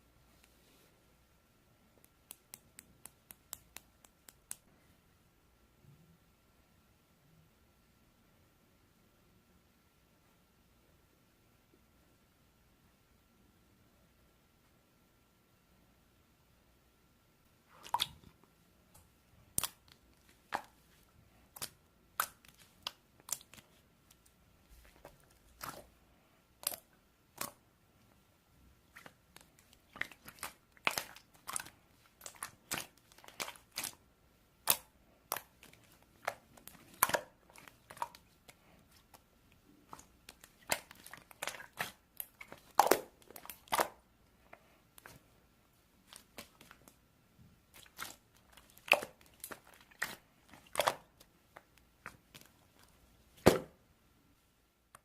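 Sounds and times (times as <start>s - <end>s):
slime squished by hand: 19.4s - 26.0s, 26.6s - 27.6s, 28.9s - 34.0s, 34.6s - 44.0s, 47.7s - 53.7s.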